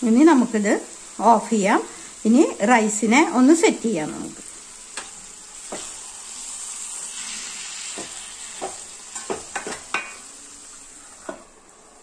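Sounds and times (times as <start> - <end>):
food sizzling in a metal pan: 0.0 - 12.0
spoon scraping a pan: 4.9 - 10.3.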